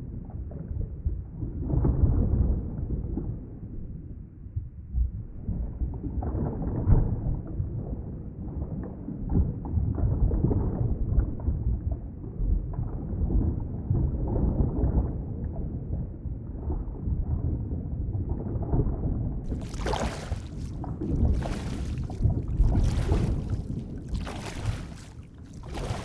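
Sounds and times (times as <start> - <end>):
faint small crackles: 19.5 - 26.0
muffled underwater water rumble: 19.5 - 26.0.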